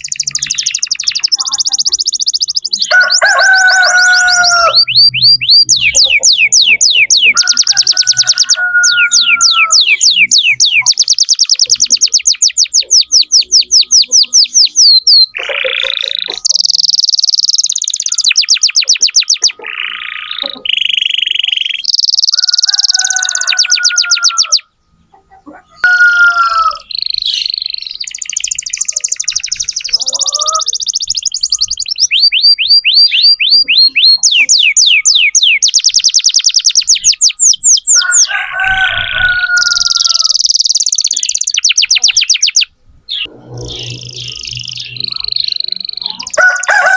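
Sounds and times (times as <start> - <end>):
canary singing trills: 0.0 - 46.9.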